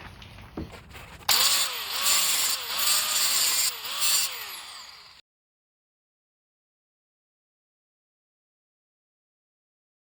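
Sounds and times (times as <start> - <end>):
cut-off wheel cutting steel: 1.2 - 5.2.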